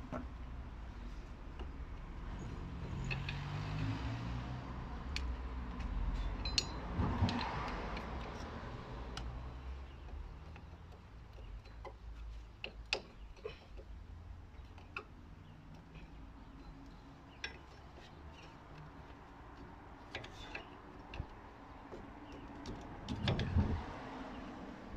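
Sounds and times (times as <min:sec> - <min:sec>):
hand tools clicking and tapping: 0:05.0 - 0:23.8.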